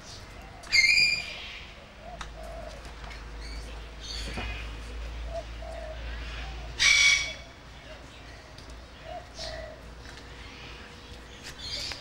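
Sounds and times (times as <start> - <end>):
dove cooing: 0.3 - 7.5, 9.0 - 9.9.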